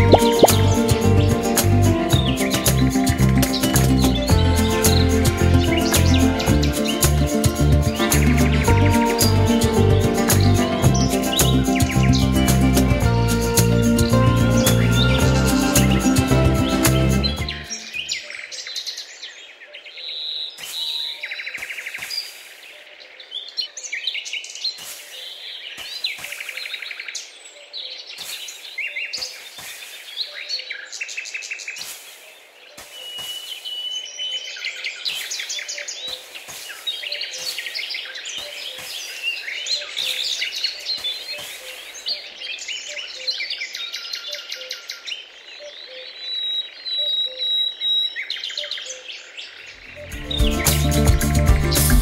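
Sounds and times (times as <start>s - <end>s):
songbirds chirping and singing: 0.0s - 52.0s
small tool scraping sand: 24.8s - 26.5s, 28.2s - 30.3s, 31.8s - 33.8s, 35.1s - 37.8s, 38.4s - 39.4s, 40.9s - 42.0s.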